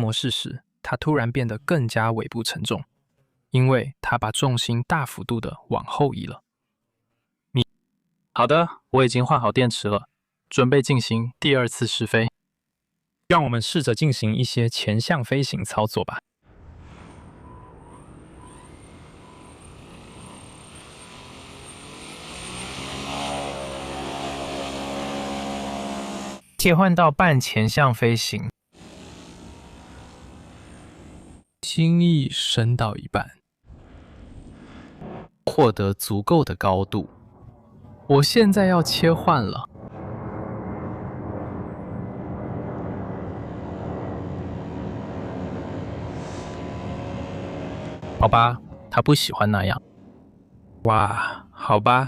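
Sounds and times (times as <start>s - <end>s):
model rotors propeller drone: 16.6s - 26.6s, 28.8s - 31.4s, 38.2s - 49.3s.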